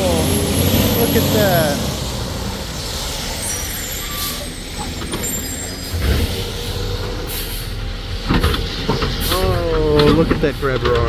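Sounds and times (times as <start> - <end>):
diesel truck engine rumbling: 0.0 - 11.0
air brake hiss: 2.2 - 7.8.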